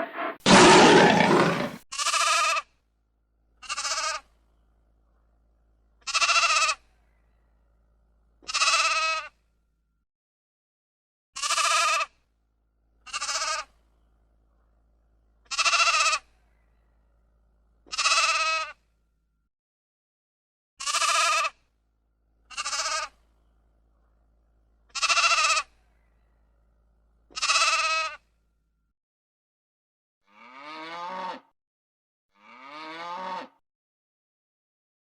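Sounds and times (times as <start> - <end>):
animal bleating: 0.2 - 2.6, 3.6 - 4.2, 6.1 - 6.8, 8.4 - 9.2, 11.4 - 12.1, 13.1 - 13.7, 15.5 - 16.3, 17.9 - 18.8, 20.8 - 21.6, 22.5 - 23.1, 24.9 - 25.8, 27.3 - 28.2, 30.3 - 31.4, 32.4 - 33.5.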